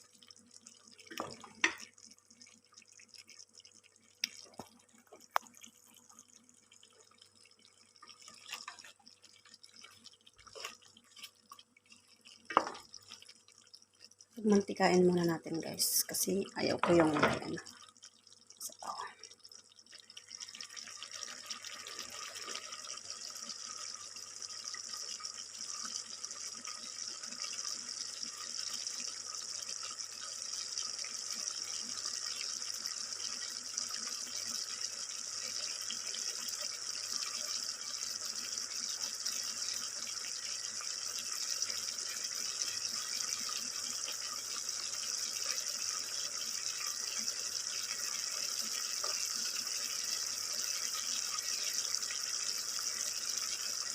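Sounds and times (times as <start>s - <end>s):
chicken feet sizzling in oil: 19.6s - 53.9s.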